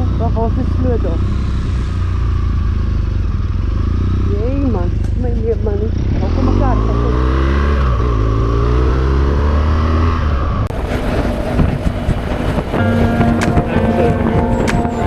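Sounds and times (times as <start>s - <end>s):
motorcycle engine running: 0.0s - 9.6s, 10.7s - 15.0s
music with held notes: 12.7s - 15.0s.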